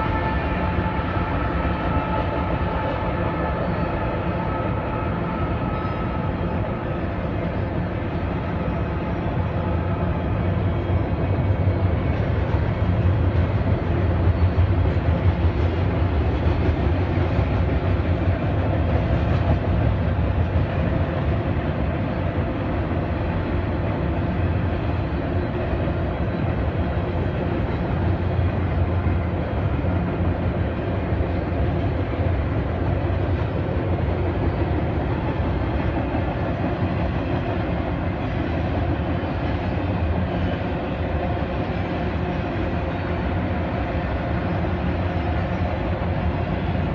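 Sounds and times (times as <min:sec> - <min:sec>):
freight train rumbling past: 0:00.0 - 0:46.9.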